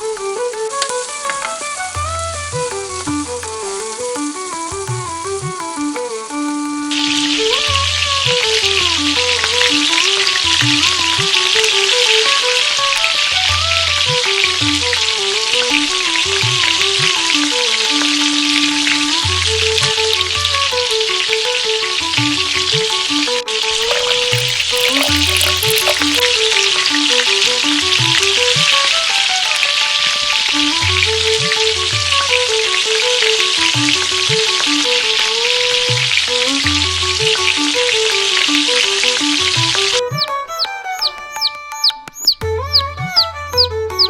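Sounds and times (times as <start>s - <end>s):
background music melody: 0.0s - 44.0s
food sizzling in hot oil: 23.8s - 26.4s.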